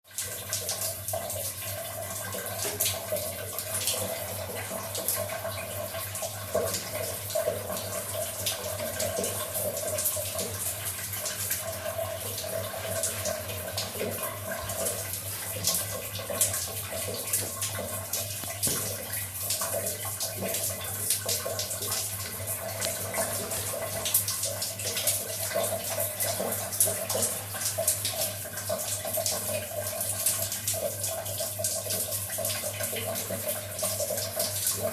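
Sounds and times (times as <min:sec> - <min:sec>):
tap water running and splashing: 0:00.0 - 0:34.9.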